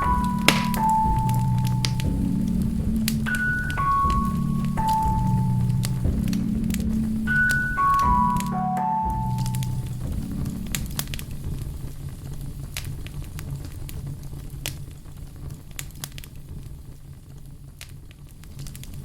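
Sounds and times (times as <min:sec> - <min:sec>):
music chord: 0:00.0 - 0:11.5
fireplace fire crackling: 0:00.0 - 0:18.9.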